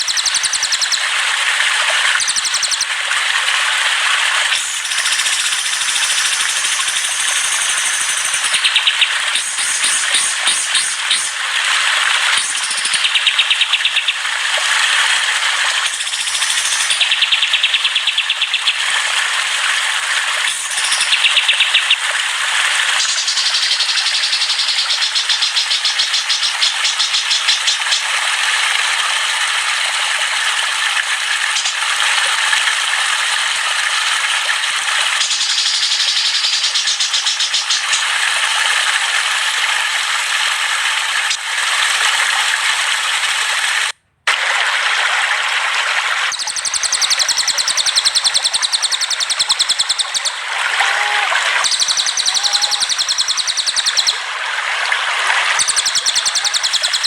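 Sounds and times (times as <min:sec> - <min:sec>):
songbirds trilling and chattering: 0:00.0 - 0:01.0, 0:02.2 - 0:02.9, 0:04.6 - 0:11.4, 0:12.4 - 0:14.2, 0:15.9 - 0:18.8, 0:20.6 - 0:22.0, 0:23.0 - 0:28.1, 0:35.2 - 0:38.1, 0:46.3 - 0:50.4, 0:51.6 - 0:54.2, 0:55.5 - 0:57.0.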